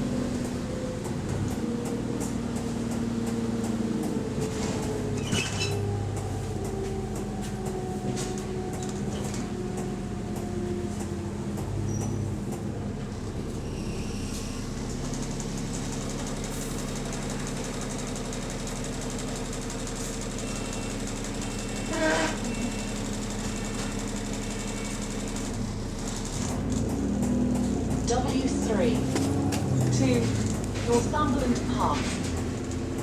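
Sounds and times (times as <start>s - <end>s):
clicks and rattles in bus: 0.0s - 13.6s, 14.3s - 33.0s
bus engine from inside cabin: 0.0s - 33.0s.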